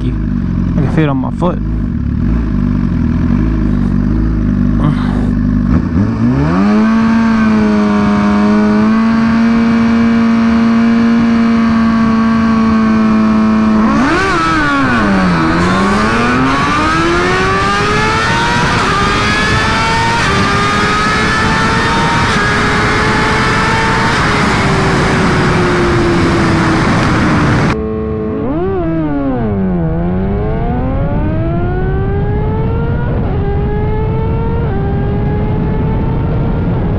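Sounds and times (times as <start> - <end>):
motorcycle engine revving: 0.0 - 36.9
wind rush: 11.1 - 27.8, 30.8 - 36.9.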